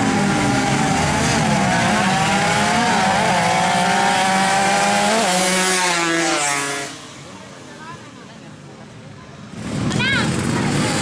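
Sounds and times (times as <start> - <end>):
motorcycle engine at high revs: 0.0 - 7.1, 9.5 - 11.0.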